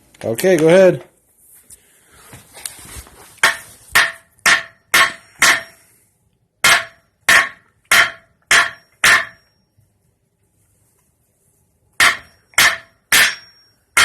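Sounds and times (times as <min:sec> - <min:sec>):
hammer striking nail into wood: 0:03.4 - 0:05.8, 0:06.6 - 0:09.4, 0:12.0 - 0:14.0.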